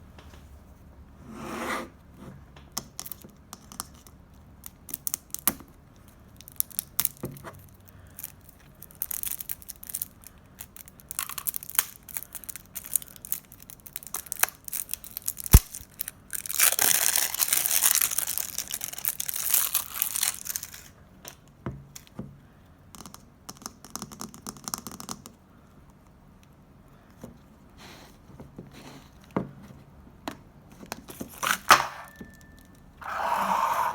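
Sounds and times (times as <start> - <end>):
slime clicking and crackling: 2.8 - 5.7, 6.4 - 20.9.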